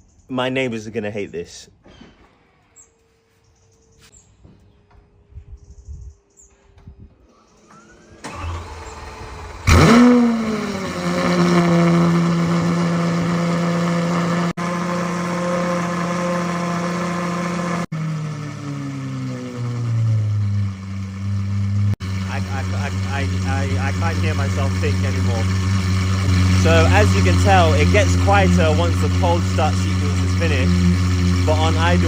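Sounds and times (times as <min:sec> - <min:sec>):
rising starter sound: 0:07.2 - 0:32.0
car engine firing and idling loudly: 0:07.6 - 0:32.0.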